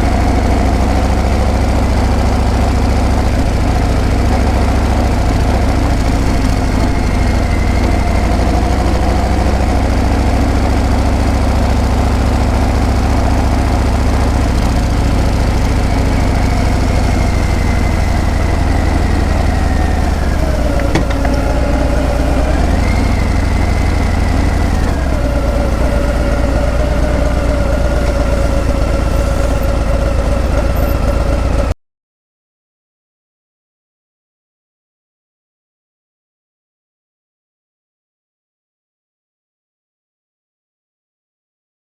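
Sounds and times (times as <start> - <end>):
motorcycle engine low rumble: 0.0 - 31.8.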